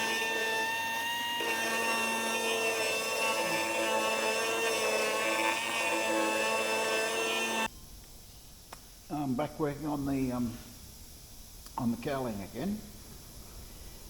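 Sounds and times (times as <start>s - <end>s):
die grinder whining: 0.0s - 7.7s.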